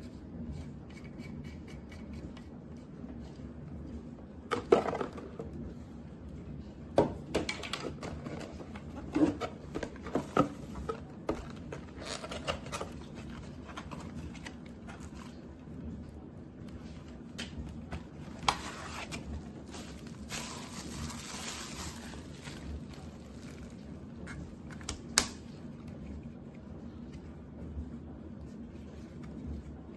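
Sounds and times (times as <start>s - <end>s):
objects being handled: 7.3s - 15.5s, 16.8s - 25.2s.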